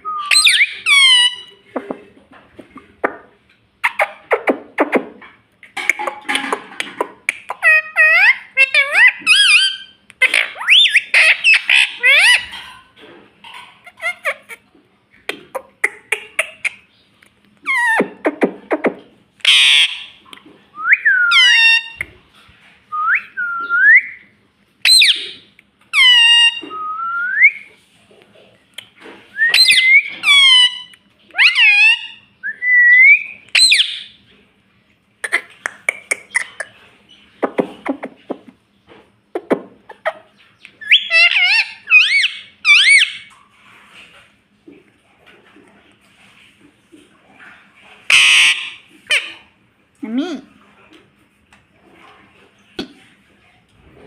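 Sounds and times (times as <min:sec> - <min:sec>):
parrot whistling: 0:00.0 - 0:01.5, 0:10.6 - 0:12.4, 0:20.8 - 0:22.0, 0:24.8 - 0:25.4, 0:29.4 - 0:34.1, 0:40.8 - 0:43.3
parrot chattering calls: 0:00.2 - 0:01.7, 0:03.8 - 0:05.0, 0:07.3 - 0:12.7, 0:13.8 - 0:14.6, 0:17.6 - 0:18.8, 0:19.4 - 0:20.2, 0:21.3 - 0:22.0, 0:24.8 - 0:26.6, 0:29.5 - 0:32.2, 0:33.2 - 0:34.2, 0:35.2 - 0:36.8, 0:40.8 - 0:43.3, 0:48.1 - 0:49.4.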